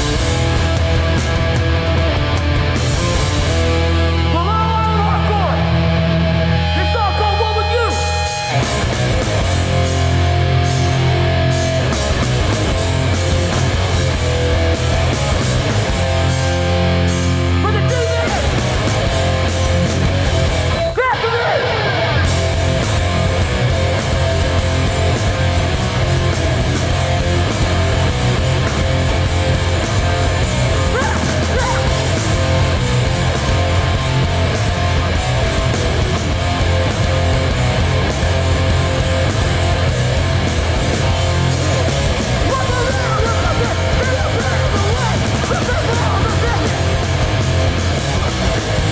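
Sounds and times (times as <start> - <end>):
bass guitar: 0.0 - 48.9
distorted electric guitars: 0.0 - 48.9
drums: 0.0 - 48.9.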